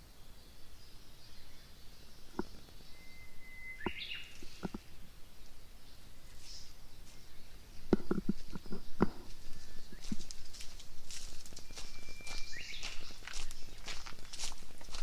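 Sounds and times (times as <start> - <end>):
birds chirping and singing: 0.0 - 15.0
footsteps on dry leaves: 9.2 - 15.0.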